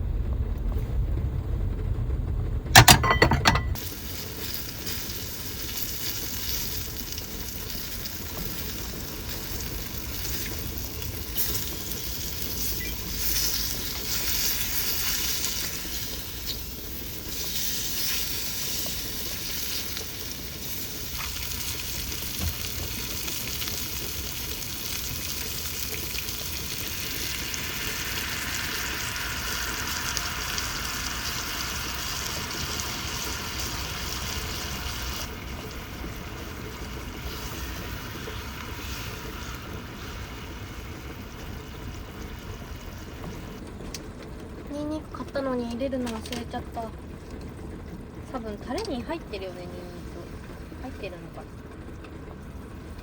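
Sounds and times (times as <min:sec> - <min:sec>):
food sizzling in frying: 0:03.8 - 0:43.6.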